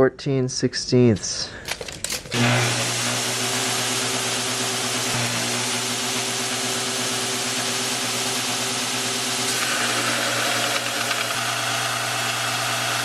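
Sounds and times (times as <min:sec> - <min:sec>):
belt grinder motor humming: 0:02.3 - 0:13.0
belt grinding workpiece: 0:09.4 - 0:13.0.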